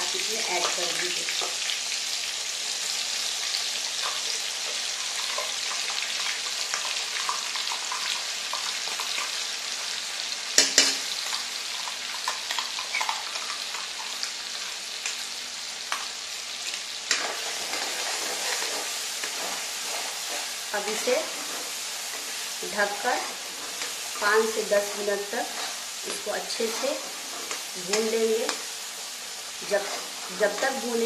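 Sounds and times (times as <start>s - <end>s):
paste sizzling in hot oil: 0.0s - 31.0s
steel ladle scraping a pan: 17.1s - 27.7s.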